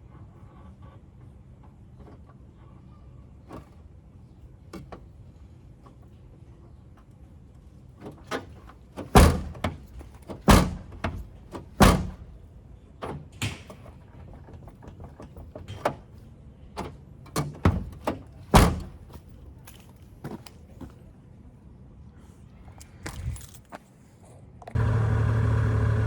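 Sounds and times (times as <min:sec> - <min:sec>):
car door shutting: 0:08.0 - 0:12.3, 0:16.8 - 0:19.0
door latch clicks: 0:09.0 - 0:12.2, 0:16.8 - 0:19.0.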